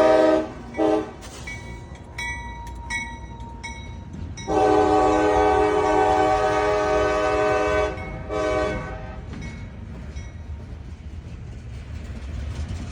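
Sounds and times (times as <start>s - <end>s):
locomotive air horn blasts: 0.0s - 1.4s, 4.5s - 9.4s
low rumble of moving train: 0.0s - 12.9s.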